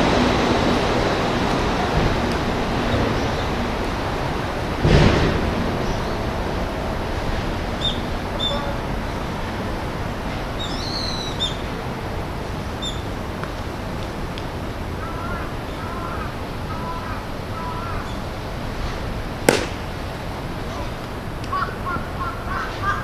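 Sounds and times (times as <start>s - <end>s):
steady outdoor hiss: 0.0s - 23.0s
sharp crack: 19.4s - 20.2s.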